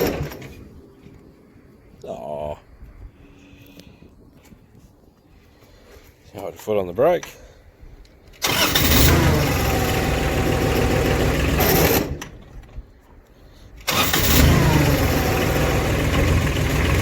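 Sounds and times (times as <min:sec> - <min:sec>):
small diesel engine starting and running: 0:00.0 - 0:00.6, 0:08.4 - 0:12.6, 0:13.8 - 0:17.0.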